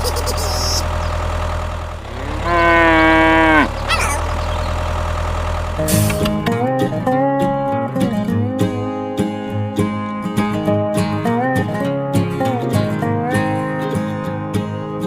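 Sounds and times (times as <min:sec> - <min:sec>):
low mechanical hum: 0:00.0 - 0:06.6
low animal call: 0:02.0 - 0:04.8
guitar music: 0:05.7 - 0:15.0.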